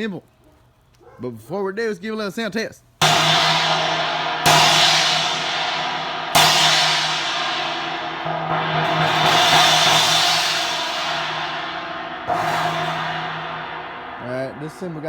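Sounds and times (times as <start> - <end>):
cracked cymbal crashing: 3.0 - 15.0.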